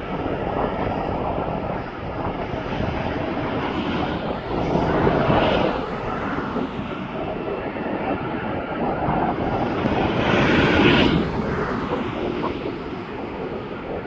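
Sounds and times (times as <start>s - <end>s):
airplane engine rushing: 0.0s - 14.0s.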